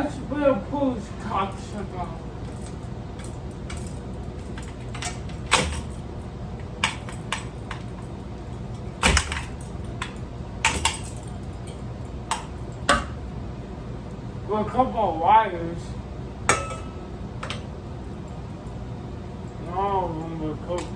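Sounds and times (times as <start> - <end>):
steady low hum: 0.0 - 20.9
clicks and knocks handling parts: 2.4 - 6.0, 6.6 - 13.2.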